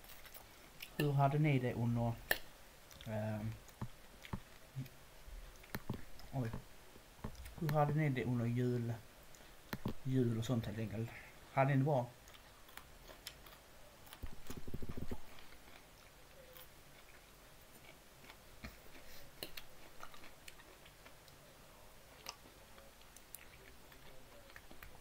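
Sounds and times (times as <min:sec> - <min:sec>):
chewing with wet mouth clicks: 0:02.3 - 0:06.3, 0:12.2 - 0:21.4, 0:22.1 - 0:25.0.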